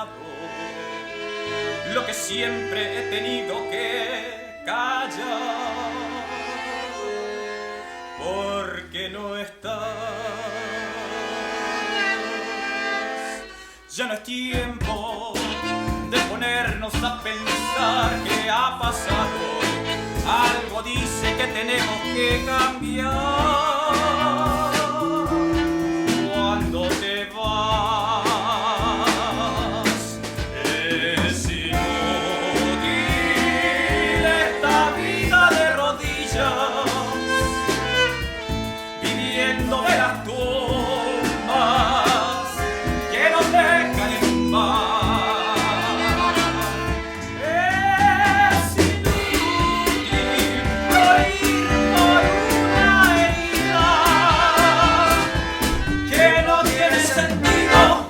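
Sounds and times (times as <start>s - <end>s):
live band playing: 11.2s - 13.8s, 14.6s - 58.0s
vibrato melody line: 15.0s - 29.9s, 30.5s - 48.0s, 49.2s - 58.0s.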